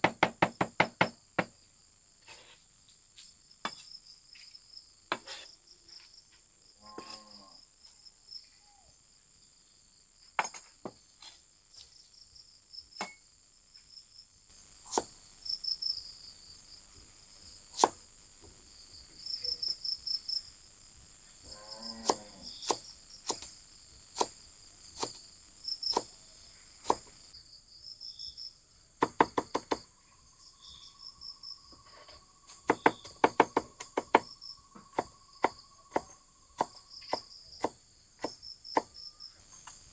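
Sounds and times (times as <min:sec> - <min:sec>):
insects chirping: 0:00.0 - 0:39.9
sharp knocks and taps: 0:29.0 - 0:29.8.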